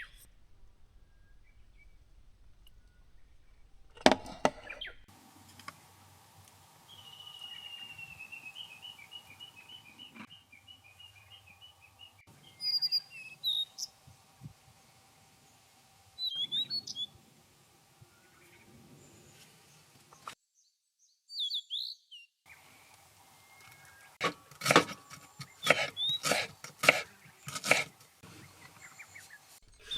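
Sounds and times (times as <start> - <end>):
wild birds singing: 0.0 - 5.1, 6.9 - 14.0, 16.2 - 17.2, 25.1 - 29.9.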